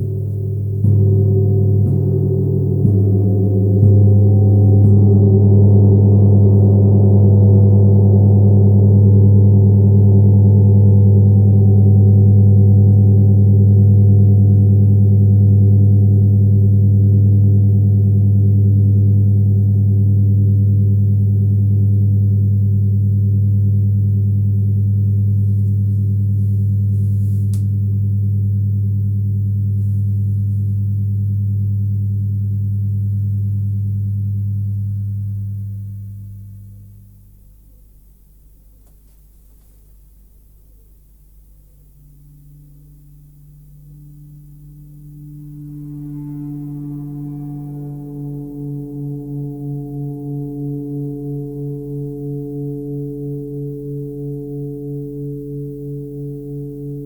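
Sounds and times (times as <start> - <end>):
gong ringing: 0.0 - 11.3.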